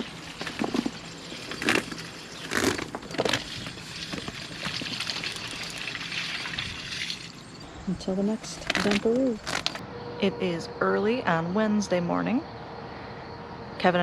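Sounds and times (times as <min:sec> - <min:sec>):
plastic hose crinkling: 0:00.0 - 0:07.6, 0:08.3 - 0:09.8
plastic hose rustling: 0:00.0 - 0:07.6, 0:08.4 - 0:09.8.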